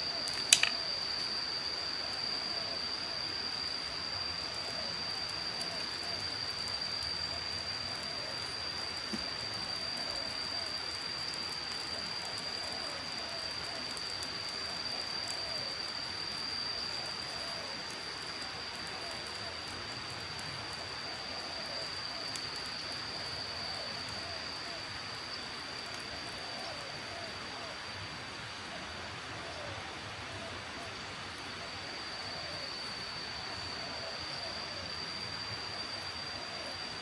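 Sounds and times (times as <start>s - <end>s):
rain-like hiss: 0.0s - 37.0s
sharp click: 0.3s - 0.8s.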